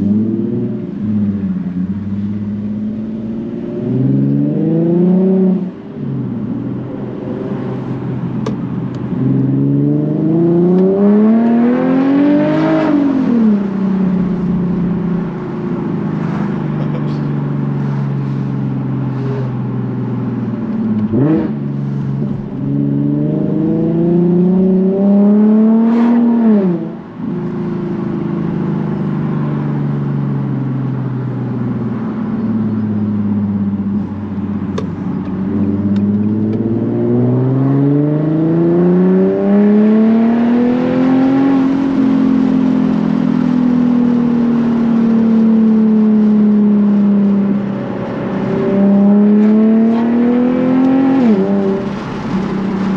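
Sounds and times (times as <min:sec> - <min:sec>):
car engine accelerating: 0:00.0 - 0:52.9.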